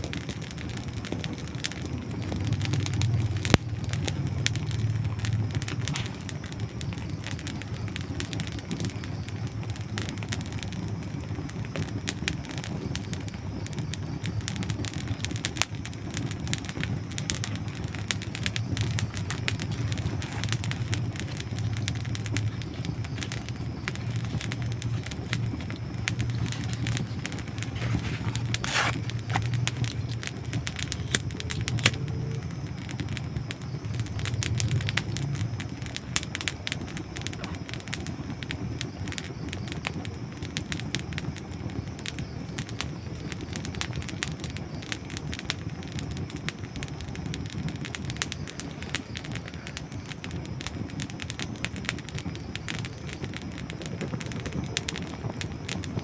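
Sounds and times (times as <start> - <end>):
campfire crackling and popping: 0.0 - 56.0
low steady rumble: 0.2 - 37.4.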